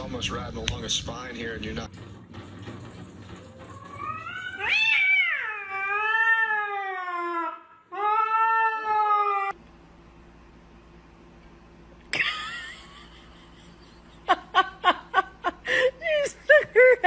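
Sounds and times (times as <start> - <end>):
cat meowing: 3.8 - 9.5.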